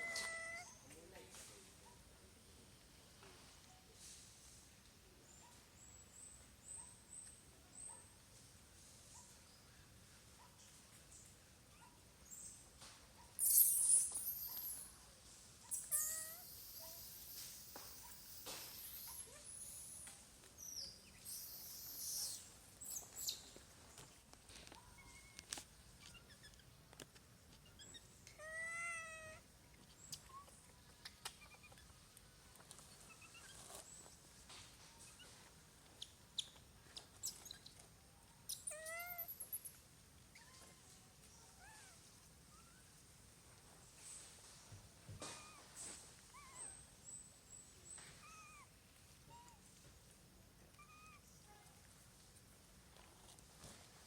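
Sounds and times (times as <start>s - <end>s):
baby monkey wavering cries: 0.0s - 0.8s, 15.7s - 20.0s, 21.2s - 23.3s, 38.5s - 39.6s, 48.2s - 48.7s, 50.8s - 51.2s
baby monkey squeaking: 13.4s - 14.9s, 15.7s - 23.5s, 26.1s - 26.7s, 36.0s - 37.8s, 38.5s - 39.7s, 50.8s - 51.2s.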